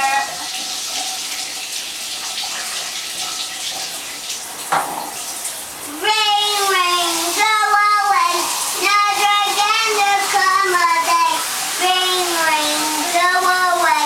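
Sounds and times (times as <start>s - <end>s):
running water hissing: 0.0s - 14.0s
child singing: 5.9s - 14.0s.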